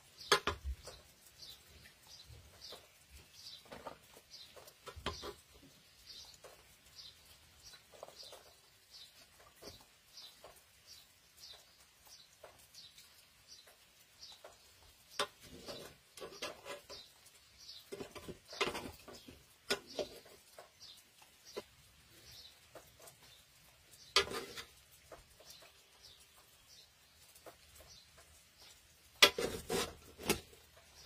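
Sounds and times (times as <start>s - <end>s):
small bird chirping: 0.0s - 31.0s
metal spoon scraping a pot: 15.2s - 17.1s, 17.9s - 20.4s, 24.0s - 24.8s, 29.2s - 30.6s.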